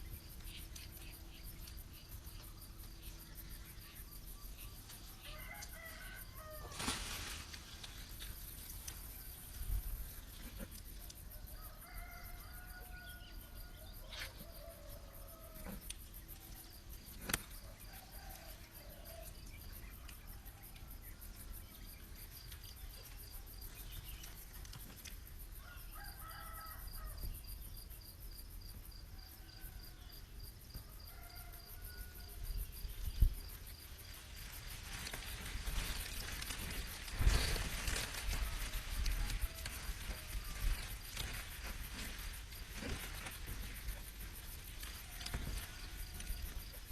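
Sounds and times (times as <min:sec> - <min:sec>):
insects chirping: 0:00.0 - 0:46.9
rooster crowing: 0:05.2 - 0:06.8, 0:11.5 - 0:15.7, 0:25.6 - 0:27.2, 0:30.8 - 0:32.4.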